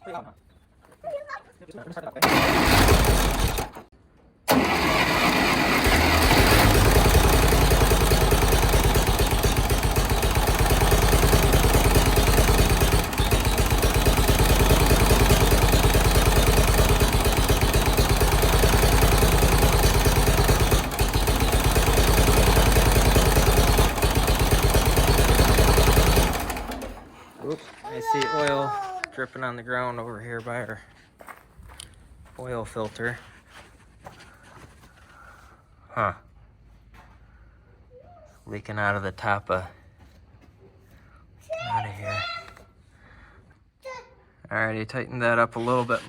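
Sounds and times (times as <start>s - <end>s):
tractor engine starting and idling: 2.2s - 3.9s, 4.5s - 27.7s.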